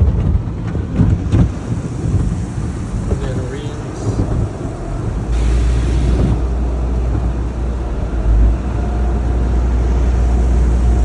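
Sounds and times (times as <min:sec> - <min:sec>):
deep steady rumble: 0:00.0 - 0:11.0
water spraying on car: 0:01.1 - 0:07.7
hissing spray burst: 0:01.6 - 0:06.6.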